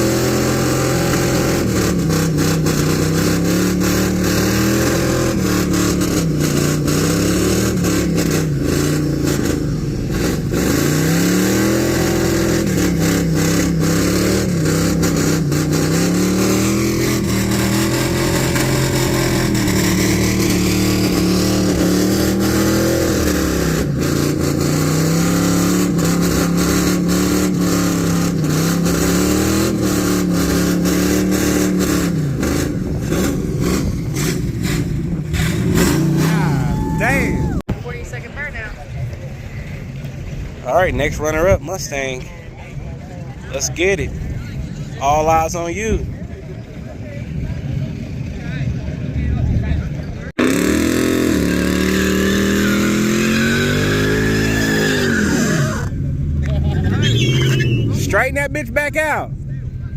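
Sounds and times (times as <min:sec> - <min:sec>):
engine revving during burnout: 0:00.0 - 0:37.6, 0:50.3 - 0:59.2.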